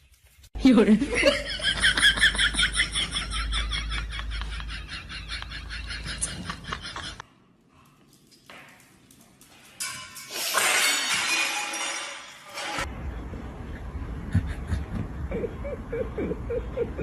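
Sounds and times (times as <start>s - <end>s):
something shattering: 9.8s - 12.9s.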